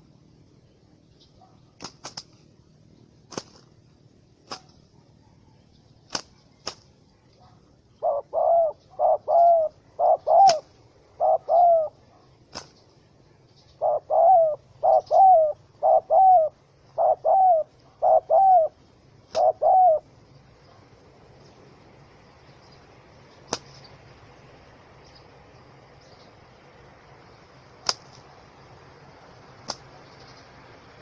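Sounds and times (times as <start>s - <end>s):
dove cooing: 7.4s - 12.2s, 13.7s - 21.0s.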